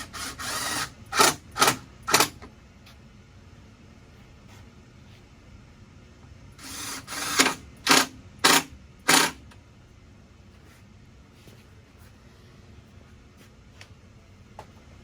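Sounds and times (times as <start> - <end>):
power drill driving a screw: 0.0 - 2.3, 6.6 - 9.4.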